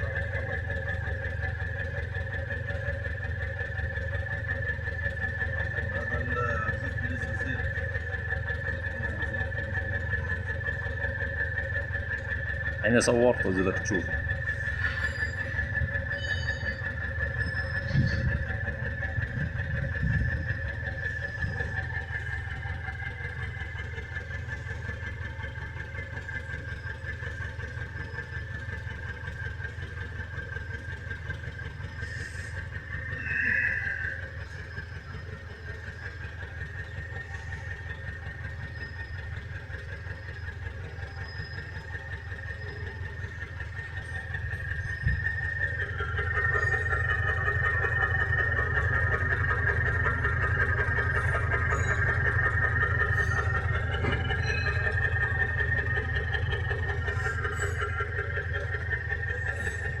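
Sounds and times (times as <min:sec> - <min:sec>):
diesel engine idling: 0:00.0 - 1:00.0
high whine: 0:32.0 - 0:35.2.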